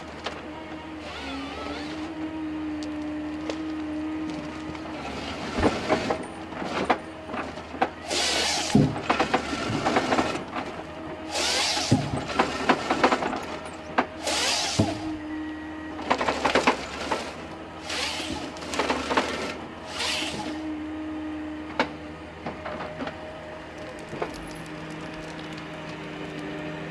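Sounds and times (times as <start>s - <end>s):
machine engine and hydraulics: 0.0s - 26.9s
saw cutting bursts: 1.0s - 2.2s, 8.0s - 10.4s, 11.3s - 13.2s, 14.2s - 15.2s, 16.9s - 20.6s.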